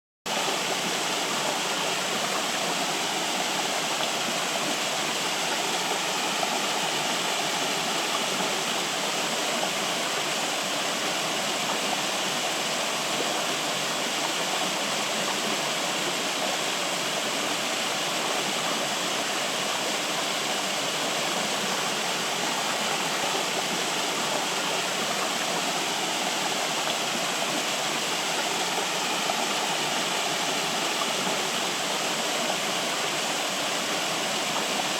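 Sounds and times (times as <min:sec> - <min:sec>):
flowing water rushing: 0:00.3 - 0:34.9.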